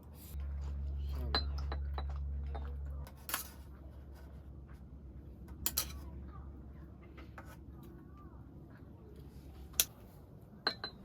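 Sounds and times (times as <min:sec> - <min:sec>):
tableware clinking: 0:05.6 - 0:06.1, 0:10.6 - 0:11.0.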